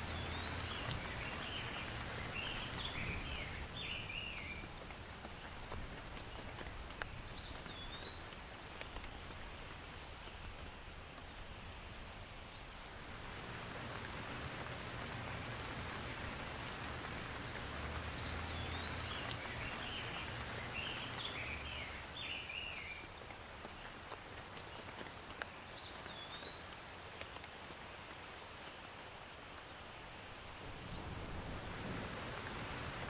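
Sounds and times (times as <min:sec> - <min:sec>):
bird chirping: 0:00.0 - 0:04.6, 0:14.8 - 0:23.0
steady rain falling: 0:00.0 - 0:33.0.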